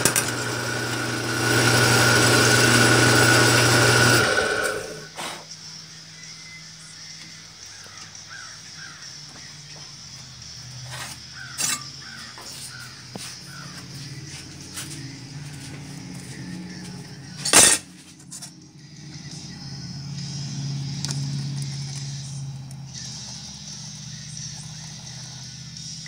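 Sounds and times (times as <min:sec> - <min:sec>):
bird calling: 0:05.7 - 0:10.0, 0:10.9 - 0:15.1.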